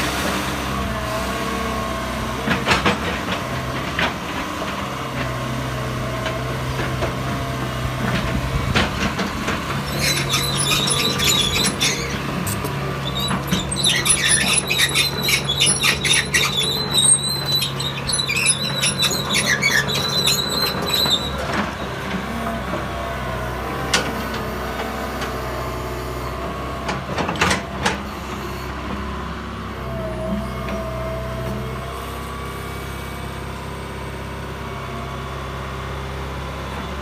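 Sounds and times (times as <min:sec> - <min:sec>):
excavator diesel engine running: 0:00.0 - 0:37.0
metallic squeaking and squealing: 0:09.8 - 0:21.8.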